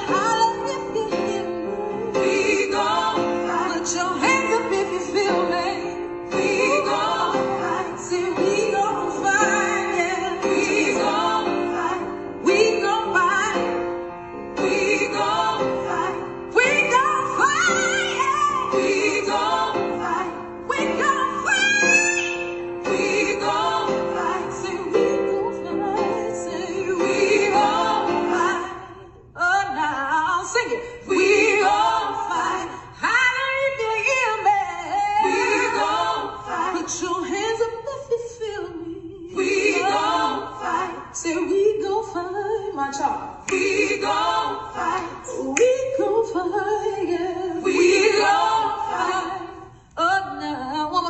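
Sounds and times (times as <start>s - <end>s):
held accompaniment chords: 0.0s - 29.2s.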